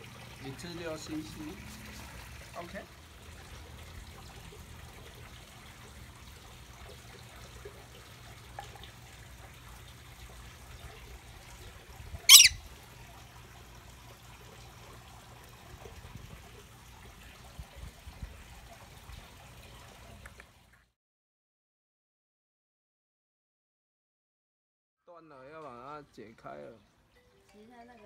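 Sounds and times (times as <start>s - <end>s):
bird squawking harshly: 12.3s - 12.6s.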